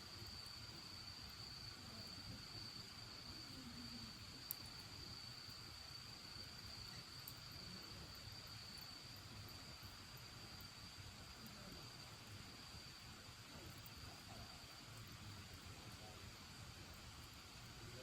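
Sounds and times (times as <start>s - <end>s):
bonfire crackling: 0.0s - 18.0s
crickets trilling: 0.0s - 18.0s.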